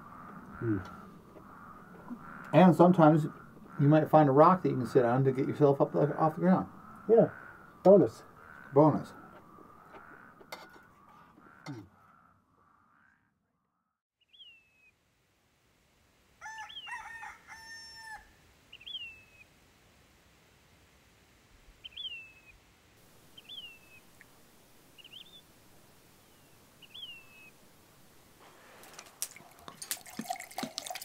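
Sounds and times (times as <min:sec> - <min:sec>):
birds whistling: 0:18.7 - 0:19.4, 0:21.8 - 0:22.6, 0:23.4 - 0:24.0, 0:25.0 - 0:25.4, 0:26.3 - 0:27.6.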